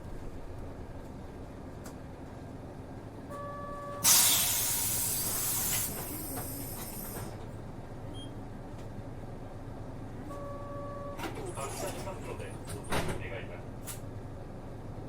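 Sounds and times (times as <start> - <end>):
bus engine idling: 0.0 - 15.0
compressed air hiss: 4.0 - 7.0
short steady beep: 10.3 - 11.2.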